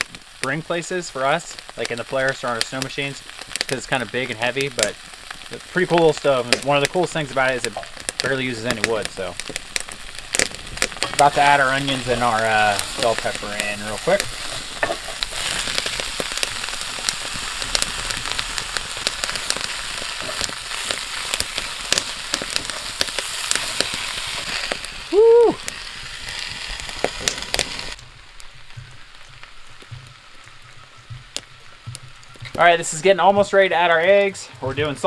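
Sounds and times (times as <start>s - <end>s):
vegetables sizzling in a skillet: 0.0s - 35.0s
wooden spatula scraping: 10.3s - 16.4s, 19.2s - 24.8s.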